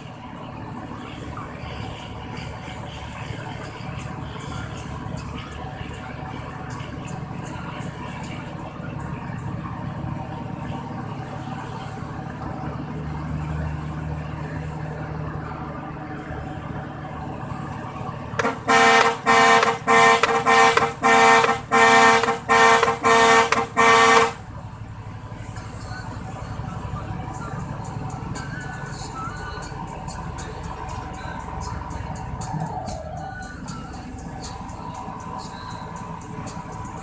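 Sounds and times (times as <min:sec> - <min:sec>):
truck engine and road noise: 0:00.0 - 0:37.0
vehicle horn blasts: 0:18.4 - 0:24.4.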